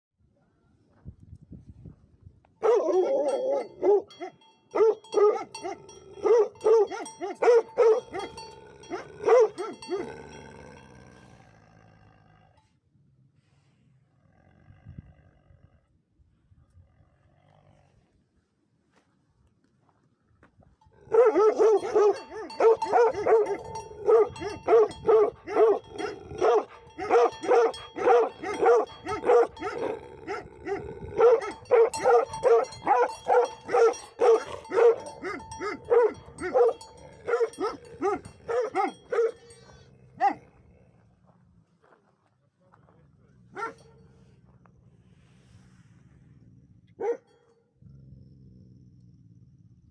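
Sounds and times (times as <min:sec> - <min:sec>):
dogs barking: 0:02.6 - 0:10.2, 0:21.0 - 0:39.6, 0:40.2 - 0:40.6, 0:43.5 - 0:44.0, 0:47.0 - 0:47.3.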